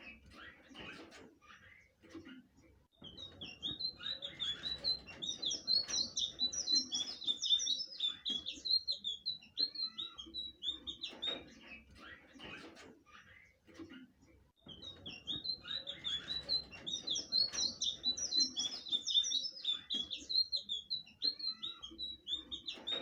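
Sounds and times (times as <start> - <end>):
flycatcher singing: 3.2 - 11.2, 14.8 - 23.0.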